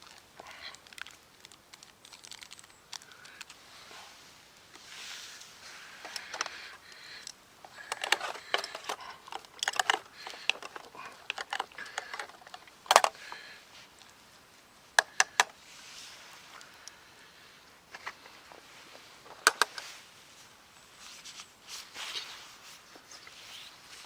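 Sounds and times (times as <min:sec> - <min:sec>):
small clicks and light clattering: 0:00.0 - 0:03.6, 0:04.7 - 0:14.2, 0:15.0 - 0:15.6, 0:17.9 - 0:19.9.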